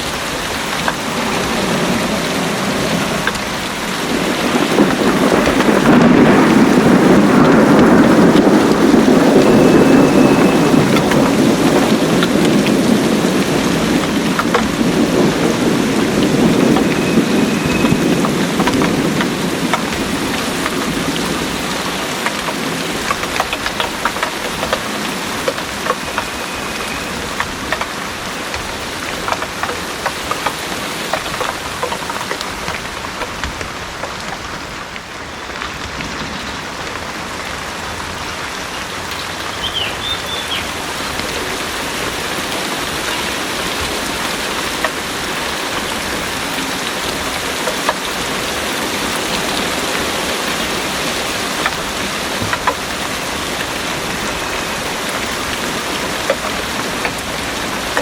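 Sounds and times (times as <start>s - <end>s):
heavy rain pouring: 0.0s - 58.0s
low rumble of thunder: 0.1s - 34.5s
drops ticking on hard surfaces: 22.1s - 34.4s, 52.4s - 52.9s.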